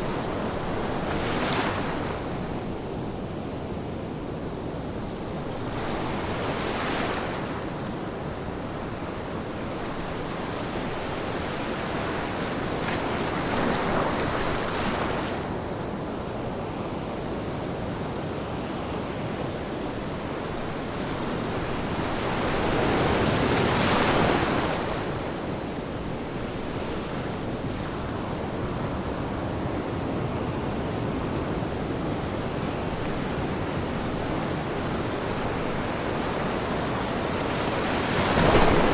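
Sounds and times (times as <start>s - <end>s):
ocean waves breaking: 32.4s - 38.9s.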